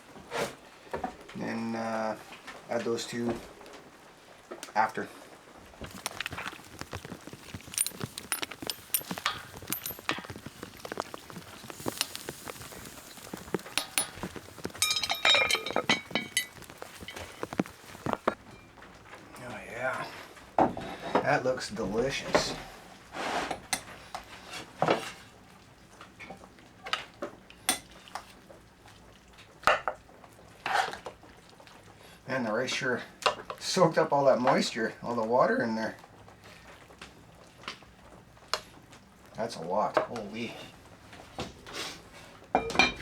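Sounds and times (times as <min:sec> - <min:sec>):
utensil scraping pot: 0:05.8 - 0:18.4, 0:30.6 - 0:31.2
metal utensils clinking on pot: 0:05.8 - 0:18.8, 0:27.7 - 0:28.2, 0:42.6 - 0:43.0
faint hiss: 0:07.3 - 0:18.4.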